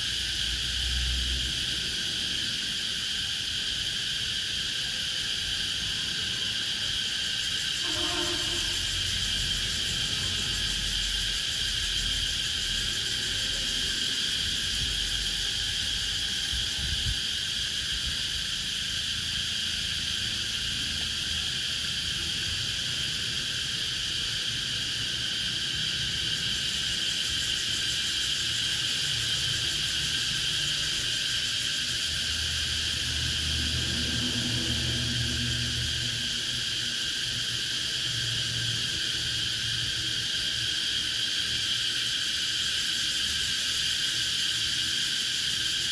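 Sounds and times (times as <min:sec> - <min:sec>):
cicadas buzzing: 0:00.0 - 0:45.9
lower-pitched call: 0:07.8 - 0:08.9.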